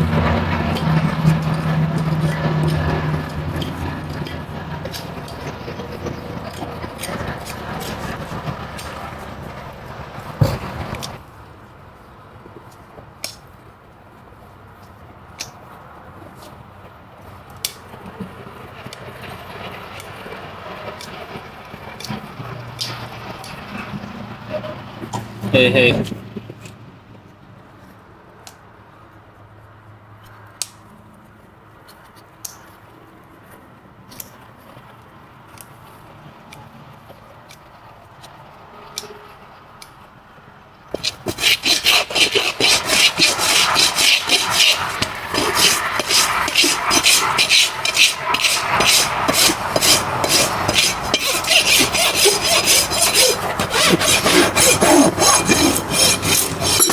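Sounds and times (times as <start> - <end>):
scraping horse's hoof: 0.0 - 11.2, 18.9 - 26.8, 40.9 - 56.9.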